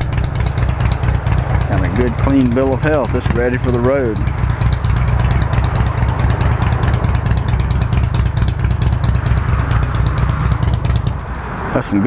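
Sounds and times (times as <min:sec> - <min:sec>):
fast mechanical ticking: 0:00.0 - 0:11.8
motorcycle engine idling: 0:00.0 - 0:12.0.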